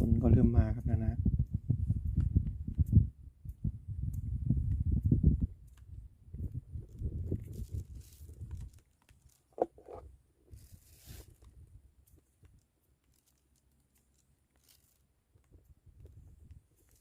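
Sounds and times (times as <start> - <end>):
wind buffeting microphone: 0.0 - 8.8, 15.4 - 16.8.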